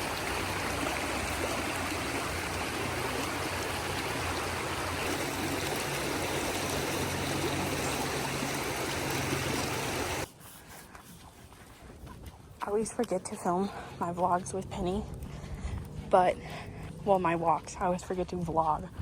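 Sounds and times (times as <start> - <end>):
stream water flowing: 0.0 - 10.3.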